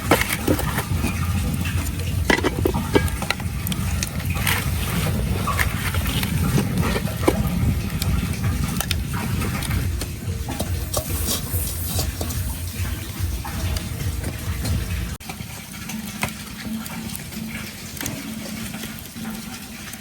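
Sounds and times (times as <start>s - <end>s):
steady low rumble: 0.0s - 15.2s
food frying in a pan: 0.0s - 20.0s
utensils stirring and clicking: 0.0s - 20.0s.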